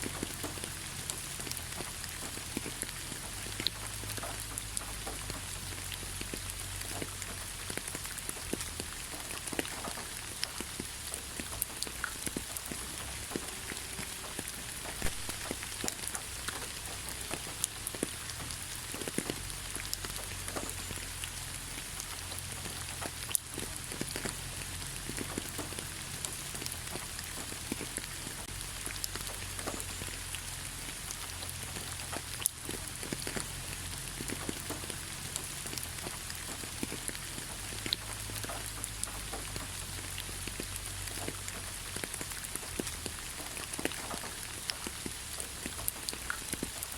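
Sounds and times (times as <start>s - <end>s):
light rain on leaves: 0.0s - 46.9s.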